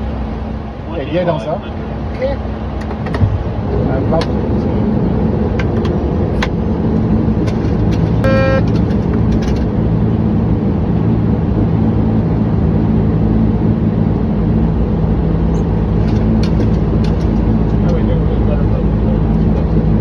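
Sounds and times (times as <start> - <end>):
airflow and engine hum: 0.0 - 20.0
short electronic beep: 8.2 - 8.7.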